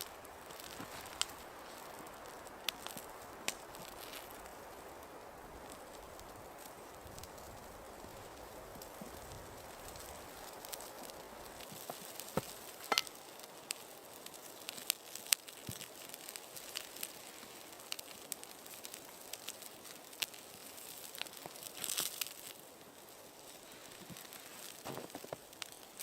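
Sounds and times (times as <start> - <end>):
faint steady hiss: 0.0 - 26.0
small clicks and crackles: 0.0 - 26.0.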